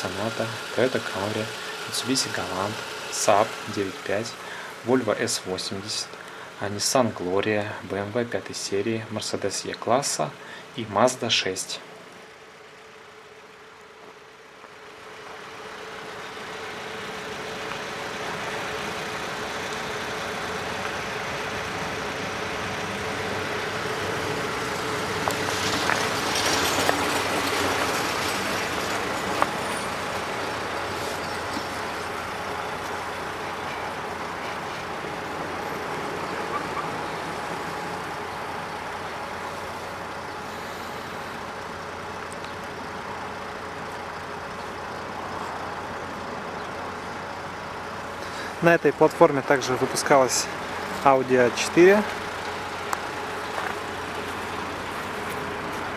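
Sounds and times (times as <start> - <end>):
road vehicle hum and rush: 0.0 - 55.9.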